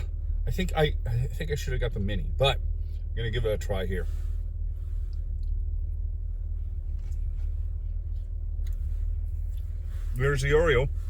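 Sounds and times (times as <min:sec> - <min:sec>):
faint hum: 0:00.0 - 0:11.0
van engine idling: 0:00.0 - 0:11.0.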